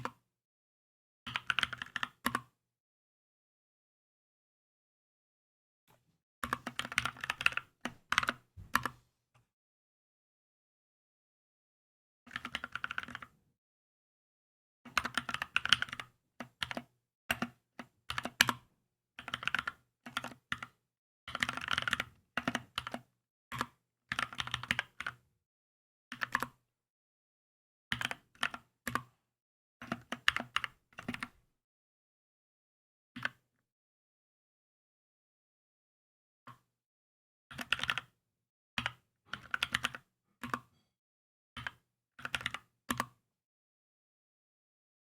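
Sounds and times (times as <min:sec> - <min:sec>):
mechanical keyboard typing: 0:06.4 - 0:08.9, 0:12.3 - 0:13.3, 0:14.9 - 0:16.8, 0:19.2 - 0:20.7, 0:21.3 - 0:25.2, 0:38.8 - 0:40.7.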